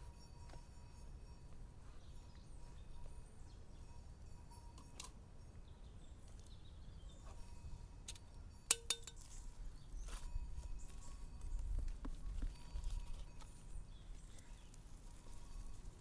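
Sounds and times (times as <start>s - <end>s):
kitchenware clinking: 8.7s - 9.3s.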